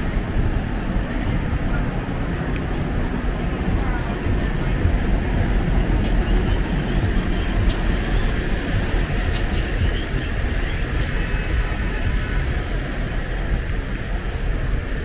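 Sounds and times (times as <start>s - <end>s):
city street rumble: 0.0s - 15.0s.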